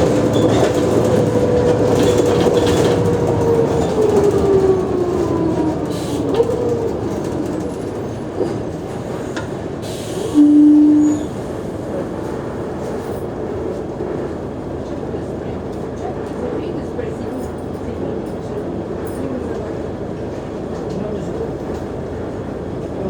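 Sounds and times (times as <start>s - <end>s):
bus engine whine: 0.0s - 14.3s.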